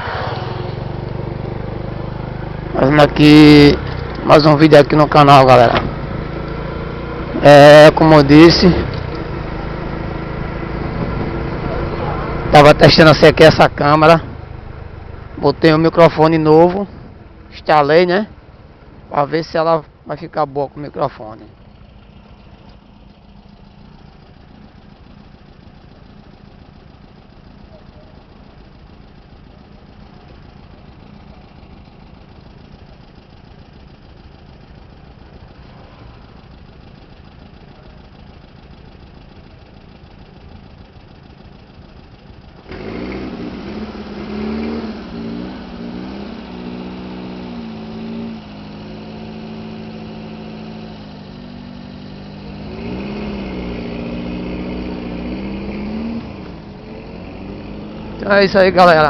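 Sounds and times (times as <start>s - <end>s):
vehicle engine revving through gears: 0.0s - 15.0s, 42.0s - 59.0s.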